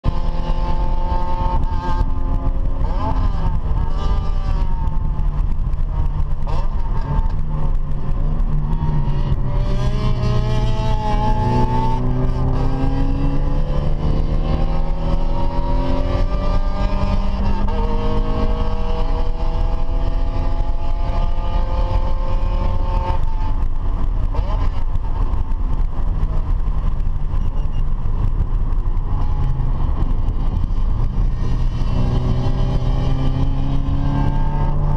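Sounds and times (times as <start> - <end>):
car engine accelerating: 0.0 - 34.9
road and wind rumble: 0.0 - 34.9.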